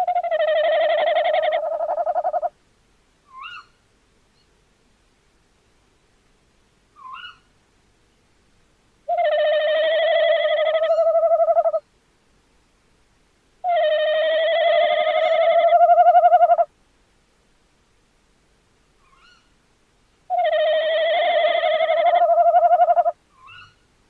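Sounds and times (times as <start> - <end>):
owl hooting: 0.0 - 2.5, 3.3 - 3.8, 7.0 - 7.4, 9.1 - 11.8, 13.6 - 16.7, 19.0 - 19.5, 20.3 - 23.8.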